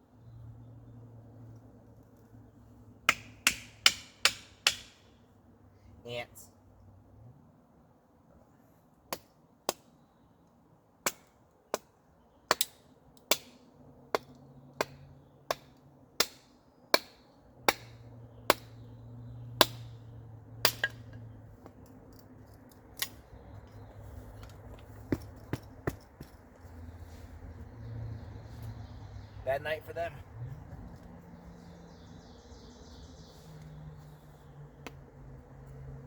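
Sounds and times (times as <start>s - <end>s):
axe chopping wood: 3.1s - 5.0s, 11.0s - 11.9s, 12.5s - 18.8s, 19.5s - 20.0s, 20.6s - 21.8s, 25.1s - 26.4s.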